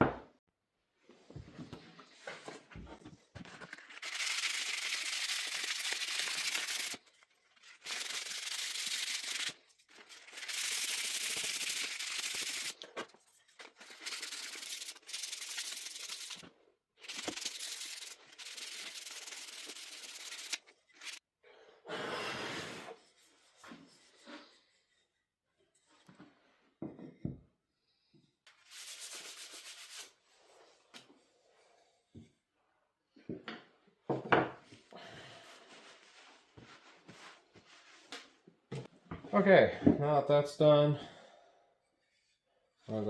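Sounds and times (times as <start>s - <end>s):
sandpaper rubbing on wood: 3.9s - 12.8s, 13.8s - 16.4s, 17.0s - 21.2s, 28.5s - 30.2s.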